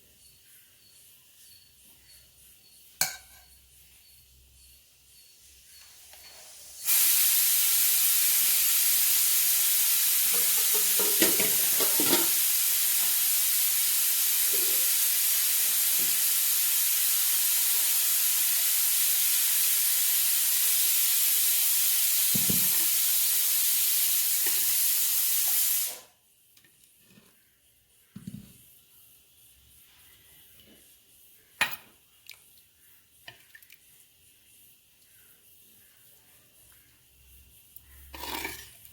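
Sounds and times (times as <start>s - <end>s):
loud steady hiss: 5.4s - 26.2s.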